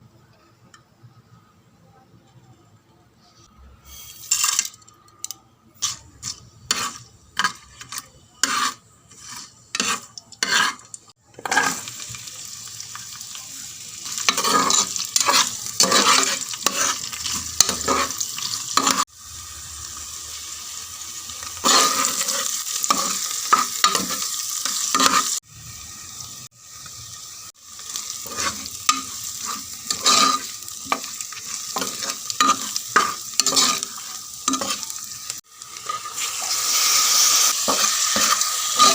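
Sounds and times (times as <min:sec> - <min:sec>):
spatula scraping a pot: 0:05.8 - 0:11.9, 0:14.3 - 0:19.0, 0:21.6 - 0:25.4, 0:28.2 - 0:34.9, 0:35.8 - 0:38.9
frying sizzle: 0:05.8 - 0:38.9.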